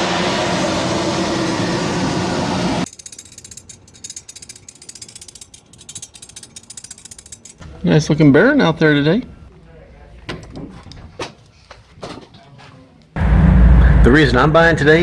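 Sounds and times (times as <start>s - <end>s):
engine running: 0.0s - 2.9s, 13.2s - 15.0s.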